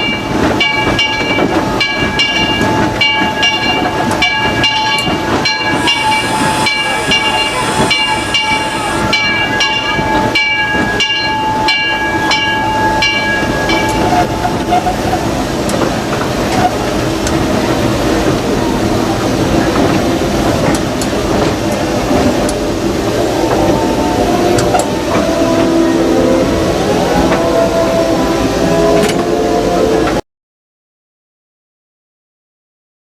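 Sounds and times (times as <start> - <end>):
steam locomotive running: 0.0 - 30.2
rhythmic metallic ringing: 0.6 - 15.2
steam hissing: 5.2 - 10.2, 14.5 - 29.0
steady tone: 5.5 - 9.9.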